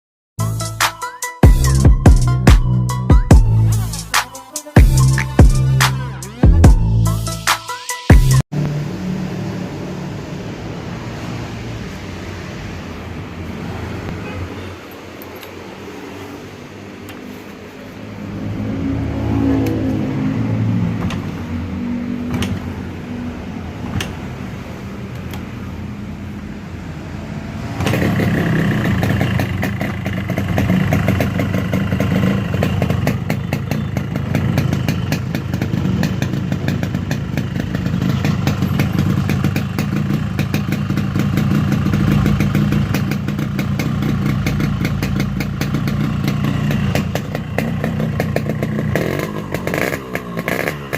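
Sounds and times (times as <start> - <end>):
two-stroke motorcycle engine revving: 18.2 - 24.6, 27.4 - 50.9.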